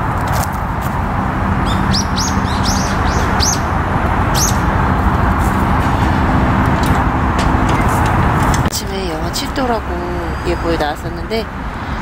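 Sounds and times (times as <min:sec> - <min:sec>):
steady traffic noise: 0:00.0 - 0:12.0
small birds chirping: 0:01.6 - 0:04.7.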